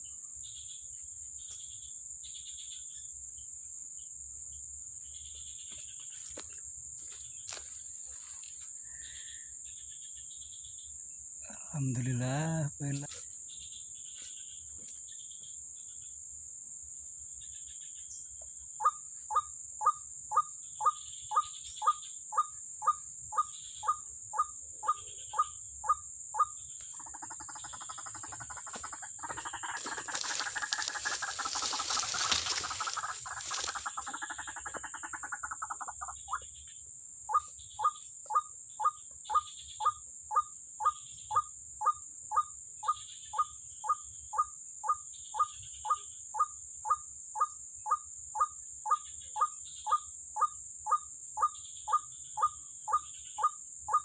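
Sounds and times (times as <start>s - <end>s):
high insect hum: 0.0s - 54.0s
waterhen calling: 27.0s - 36.4s.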